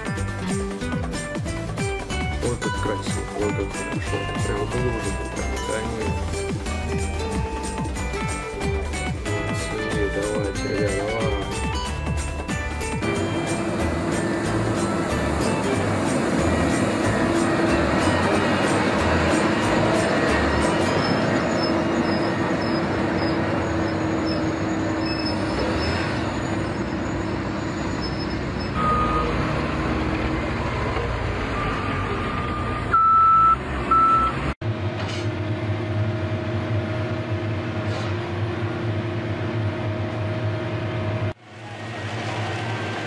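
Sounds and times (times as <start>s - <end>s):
diesel engine running: 0.0s - 43.0s
short high beeps: 32.5s - 34.4s.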